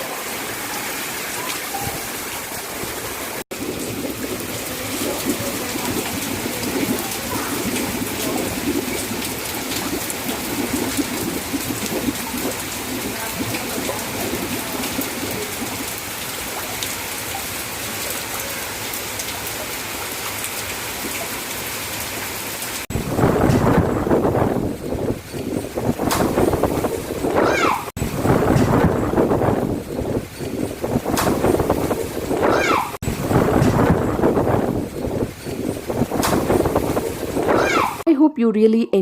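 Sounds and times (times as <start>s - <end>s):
heavy rain falling: 0.0s - 38.0s.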